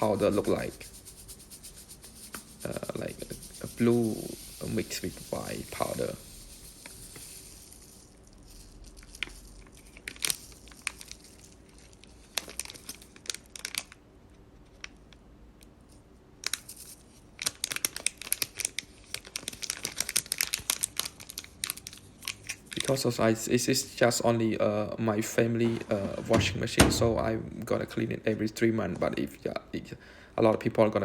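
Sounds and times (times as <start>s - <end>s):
plastic packet crinkling: 8.3s - 14.0s, 16.4s - 23.3s.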